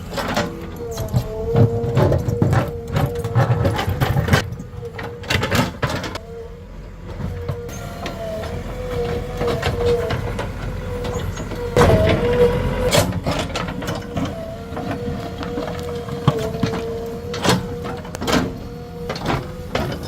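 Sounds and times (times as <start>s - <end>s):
diesel engine whine: 0.0s - 20.0s.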